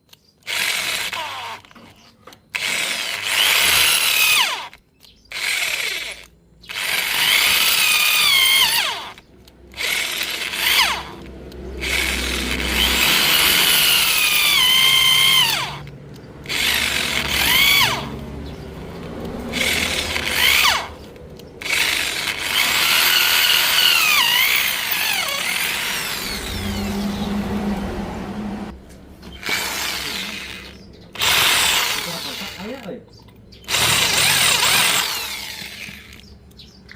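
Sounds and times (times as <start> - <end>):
electric drill whining into bolt: 0.4 - 9.2, 19.5 - 27.2, 29.3 - 32.9, 33.7 - 36.3.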